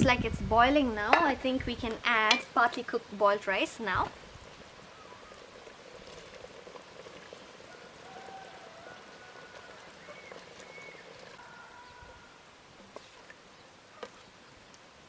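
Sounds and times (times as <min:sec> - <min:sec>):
pot bubbling: 0:00.0 - 0:11.4
wood fire crackling: 0:00.0 - 0:11.4.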